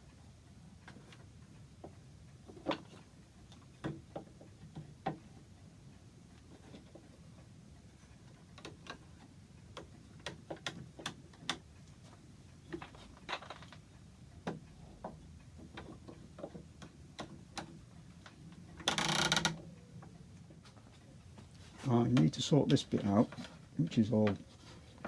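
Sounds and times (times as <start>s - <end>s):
wooden parts clicking and knocking: 8.2s - 11.7s, 12.7s - 21.0s
scraping rustle: 22.8s - 23.6s.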